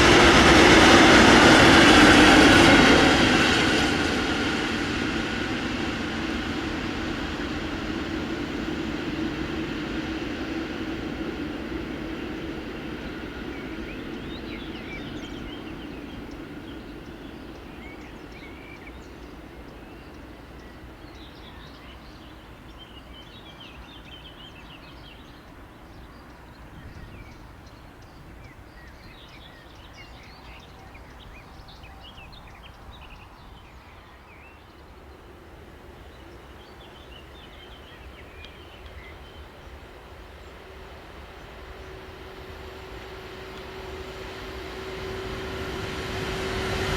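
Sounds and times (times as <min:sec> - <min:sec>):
train passing: 0:00.0 - 0:46.9
small birds singing: 0:11.4 - 0:35.4, 0:36.0 - 0:46.9.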